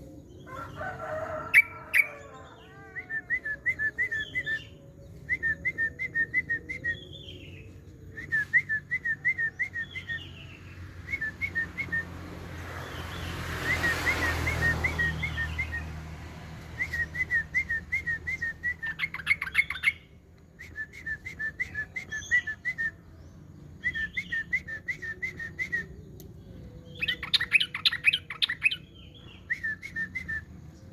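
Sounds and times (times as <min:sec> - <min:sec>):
songbird singing: 0:00.0 - 0:30.9.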